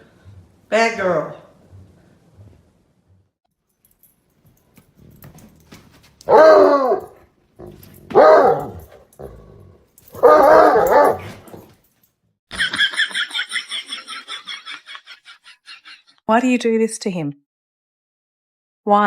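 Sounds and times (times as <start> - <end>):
dog howling: 6.3 - 9.4, 10.2 - 11.6.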